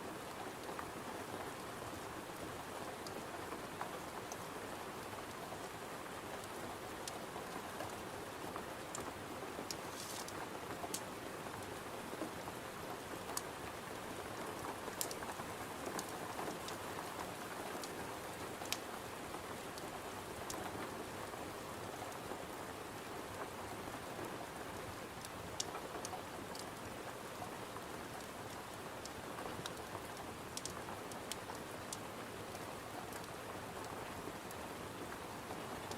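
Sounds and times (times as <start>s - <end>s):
rain pattering on a window: 0.0s - 35.9s
wood fire crackling: 9.6s - 11.1s, 15.0s - 15.2s, 25.2s - 26.8s, 28.3s - 33.4s.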